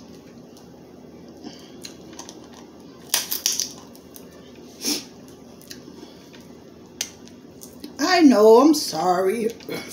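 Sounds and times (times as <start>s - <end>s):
crab shell cracking and crunching: 1.8s - 4.3s.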